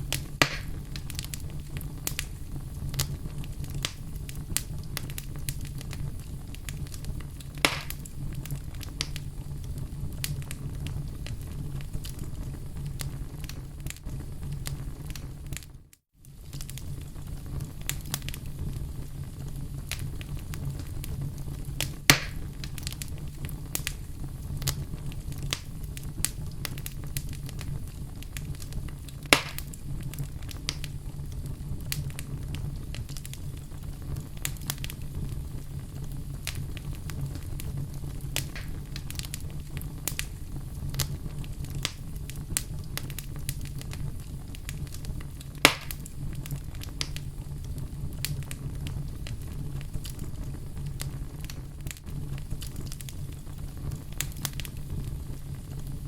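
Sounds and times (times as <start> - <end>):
fire crackling in fireplace: 0.0 - 56.0
loud fire pops: 0.0 - 56.0.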